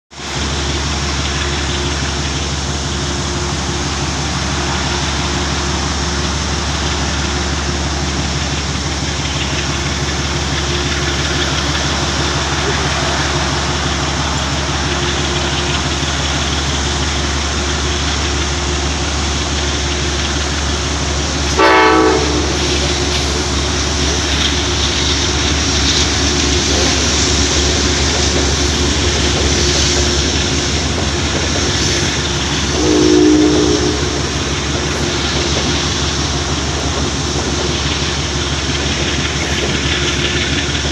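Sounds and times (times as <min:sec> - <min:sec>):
train rumbling past: 0:00.1 - 0:40.9
train horn blasts: 0:21.5 - 0:23.5, 0:32.6 - 0:35.3.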